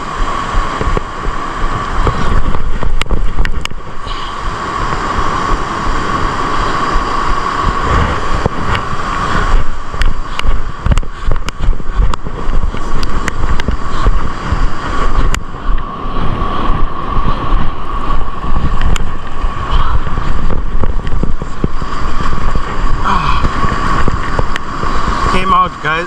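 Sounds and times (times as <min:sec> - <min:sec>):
surf: 0:00.0 - 0:26.0
wind buffeting microphone: 0:00.0 - 0:26.0
scattered clicks: 0:09.6 - 0:15.9, 0:17.6 - 0:19.4.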